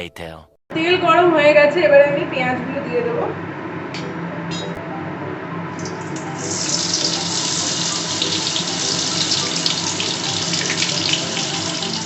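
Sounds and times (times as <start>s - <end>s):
onions sizzling in hot oil: 6.4s - 12.0s.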